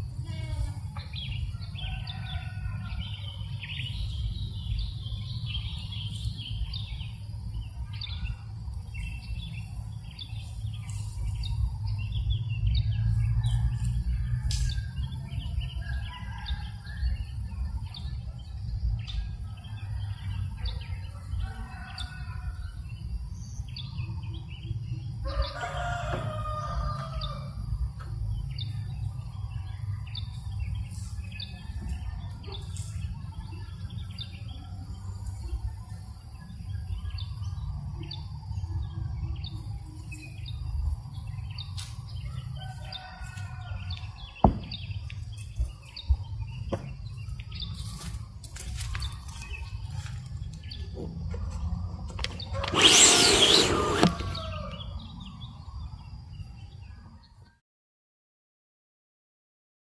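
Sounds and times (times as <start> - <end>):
rooster crowing: 1.5 - 3.2, 15.8 - 17.2, 21.2 - 22.8, 25.2 - 27.7, 42.4 - 44.3, 52.4 - 55.1
small birds chirping: 48.6 - 57.1.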